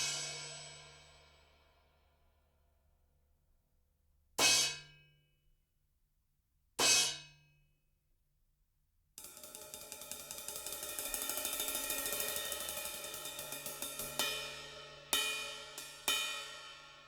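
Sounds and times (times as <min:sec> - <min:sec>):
cymbal struck ringing: 0:09.4 - 0:17.0.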